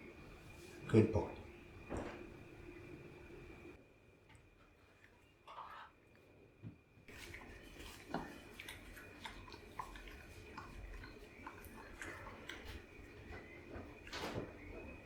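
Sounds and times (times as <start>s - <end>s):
cat chewing dry food: 7.1s - 14.1s.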